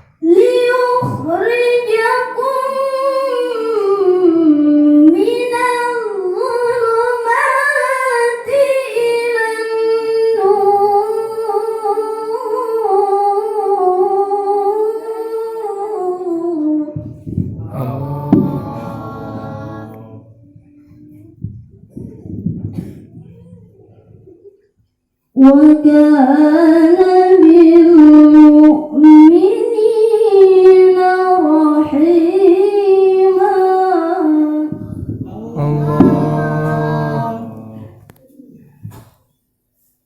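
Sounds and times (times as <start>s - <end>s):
woman reciting melodically: 0.2s - 12.5s, 17.6s - 20.4s, 25.4s - 38.1s
low muffled murmur: 17.5s - 20.2s, 35.2s - 38.0s.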